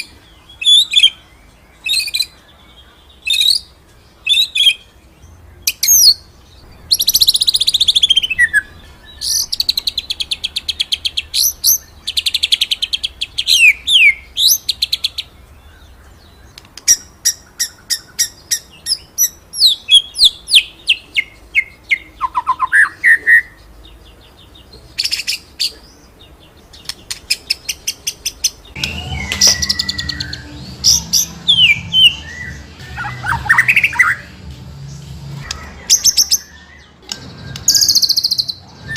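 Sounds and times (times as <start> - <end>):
low background hum: 0.0 - 22.7
songbird singing trills and whistles: 0.0 - 34.3, 35.4 - 38.9.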